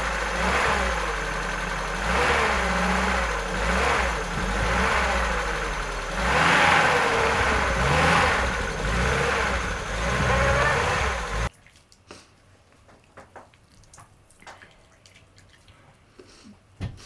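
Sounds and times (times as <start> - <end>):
vehicle engine revving: 0.0 - 11.5.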